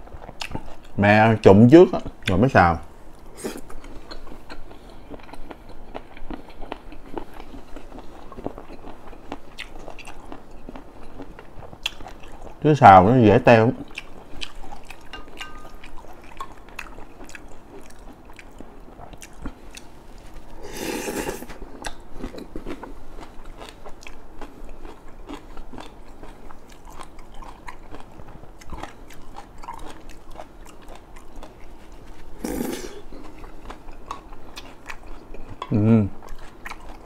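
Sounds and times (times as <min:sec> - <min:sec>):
chewing and biting food: 0:00.0 - 0:01.0, 0:03.4 - 0:12.6, 0:13.8 - 0:37.0.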